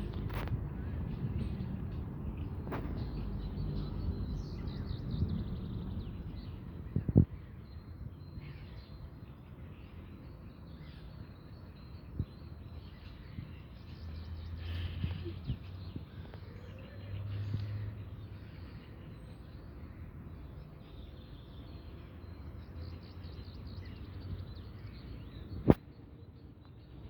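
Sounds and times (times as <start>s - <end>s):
low outdoor rumble: 0.0s - 7.3s
birds calling faintly: 0.0s - 27.0s.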